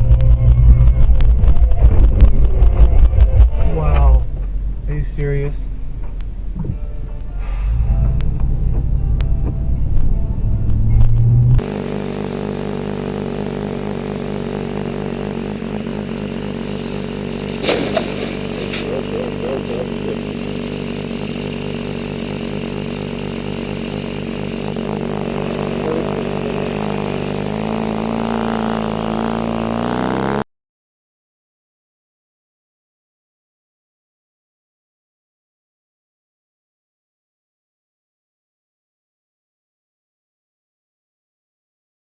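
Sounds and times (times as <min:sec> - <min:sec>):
vehicle engine running: 0:00.0 - 0:30.4
short clatter: 0:17.6 - 0:19.0.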